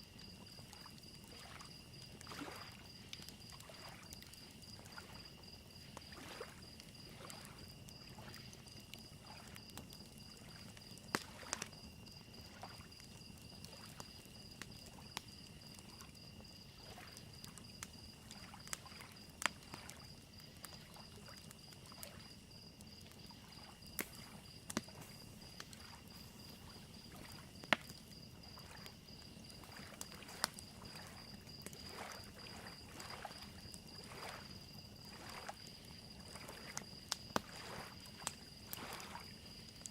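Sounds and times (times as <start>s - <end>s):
crickets chirping: 0.0s - 39.9s
wood fire crackling and popping: 0.2s - 39.9s
lake waves lapping on shore: 0.6s - 9.6s, 10.3s - 11.8s, 16.7s - 17.2s, 18.2s - 20.1s, 23.2s - 27.6s, 28.3s - 36.8s, 37.4s - 39.3s.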